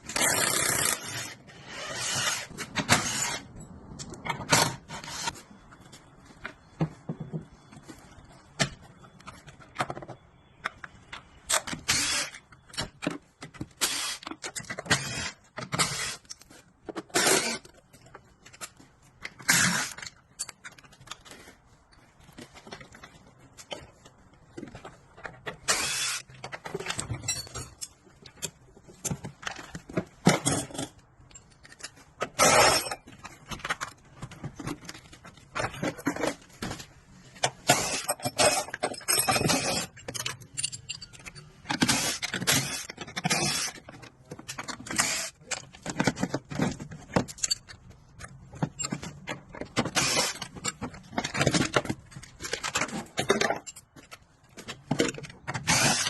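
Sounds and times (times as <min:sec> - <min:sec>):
metal tools clinking and rattling: 0:24.8 - 0:36.6, 0:37.6 - 0:56.0.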